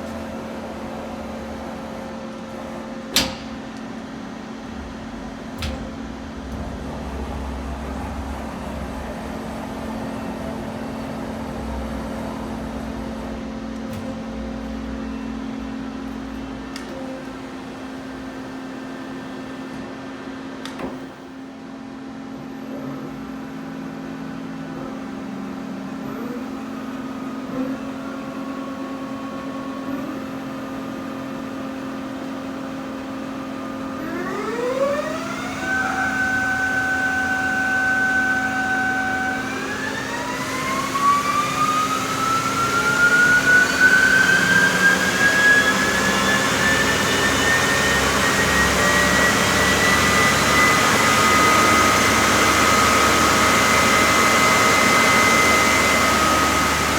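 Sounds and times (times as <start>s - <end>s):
lathe machine hum: 0.0s - 22.2s, 22.8s - 56.9s
motor whine rising: 33.6s - 56.9s.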